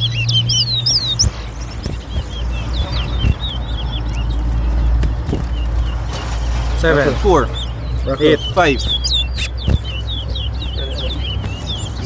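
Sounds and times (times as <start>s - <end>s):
finch singing looping chirps: 0.0s - 6.1s, 6.8s - 12.0s.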